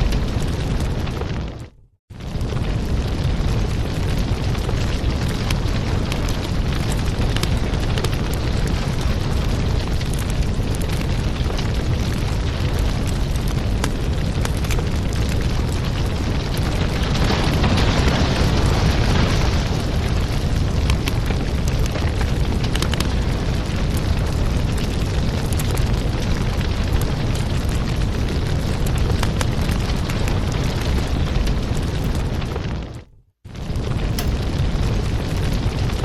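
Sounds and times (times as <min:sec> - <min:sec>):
wood fire crackling: 0:00.0 - 0:36.0
fire hissing: 0:33.6 - 0:35.8.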